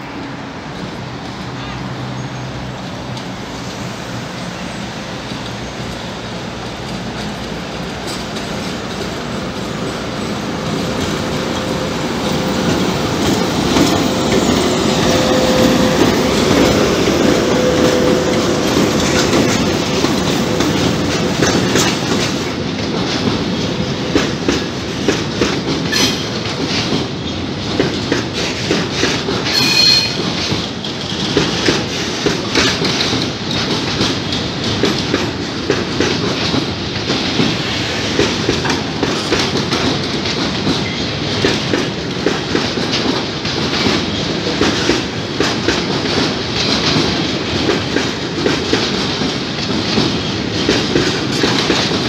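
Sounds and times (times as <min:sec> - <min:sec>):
train wheels clacking over rail joints: 0:03.1 - 0:52.0
electric locomotive whine: 0:03.5 - 0:22.8.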